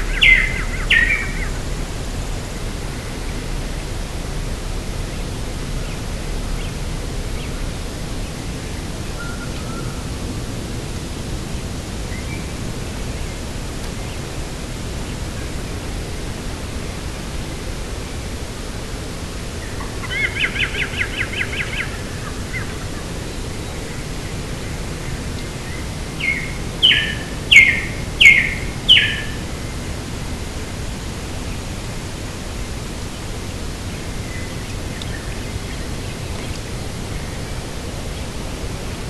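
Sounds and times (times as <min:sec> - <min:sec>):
bird trilling: 0:00.0 - 0:01.6, 0:26.2 - 0:29.4
bird sharp falling calls: 0:00.0 - 0:01.7, 0:25.7 - 0:29.4.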